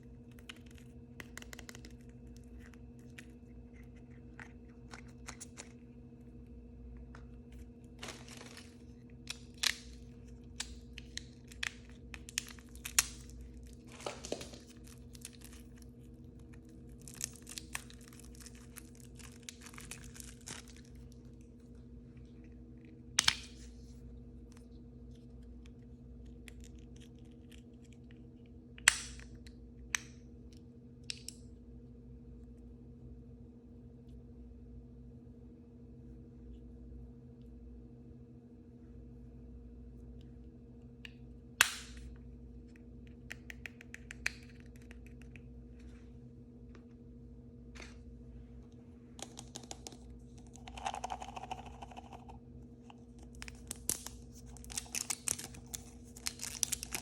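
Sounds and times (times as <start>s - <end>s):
plastic packaging crinkling and tearing: 7.9s - 21.2s, 53.2s - 57.0s
sharp clicks and snaps: 41.0s - 45.5s.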